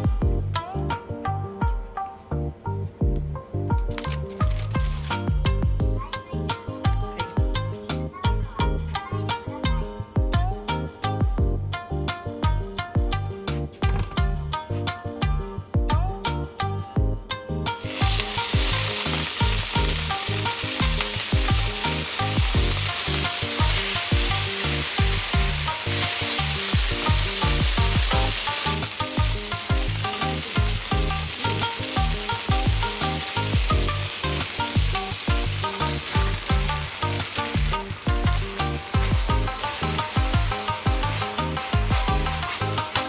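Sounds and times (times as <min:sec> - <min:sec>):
background music with beat: 0:00.0 - 0:43.0
food sizzling in hot oil: 0:17.7 - 0:43.0.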